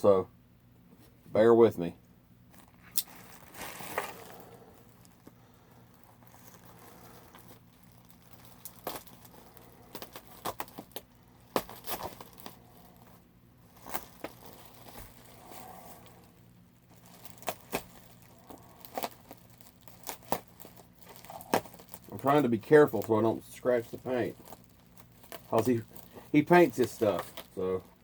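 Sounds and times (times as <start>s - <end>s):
packing material crinkling: 2.5s - 28.0s.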